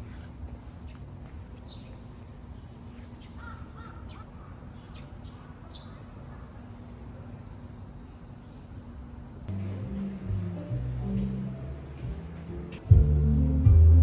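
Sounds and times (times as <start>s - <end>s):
birds calling: 0.8s - 7.8s.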